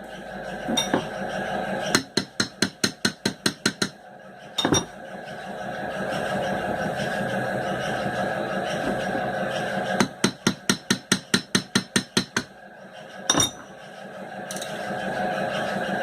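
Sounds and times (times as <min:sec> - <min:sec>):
hammer tapping on metal: 0:02.0 - 0:04.0, 0:04.6 - 0:04.9, 0:10.0 - 0:12.5, 0:13.3 - 0:13.7.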